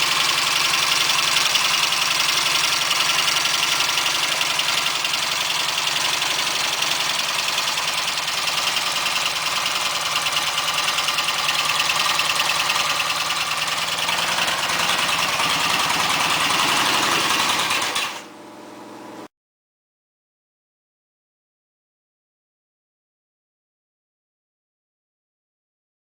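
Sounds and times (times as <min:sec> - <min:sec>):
motorcycle engine running: 0:00.0 - 0:19.3.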